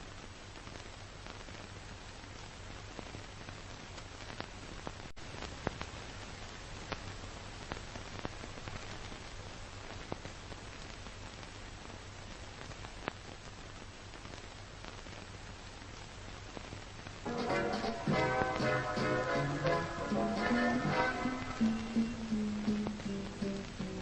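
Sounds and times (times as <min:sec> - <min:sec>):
analog static hiss: 0:00.0 - 0:24.0
crackles and pops: 0:00.0 - 0:24.0.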